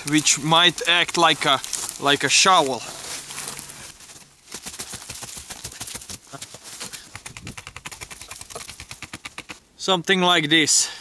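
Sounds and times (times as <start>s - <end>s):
wood cracking and snapping: 0.0s - 2.2s.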